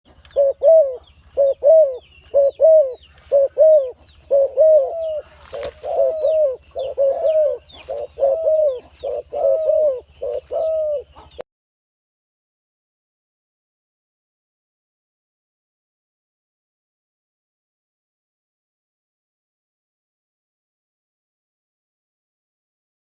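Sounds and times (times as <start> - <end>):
dove cooing: 0.1 - 11.4.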